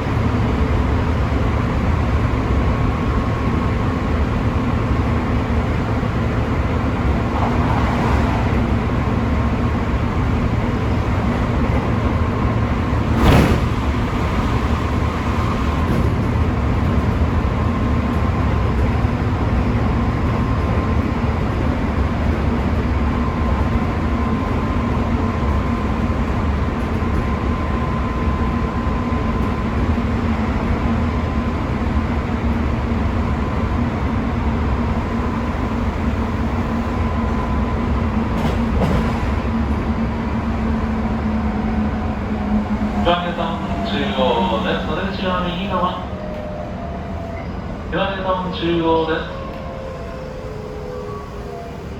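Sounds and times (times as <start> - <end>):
train wheels rumbling: 0.0 - 51.9.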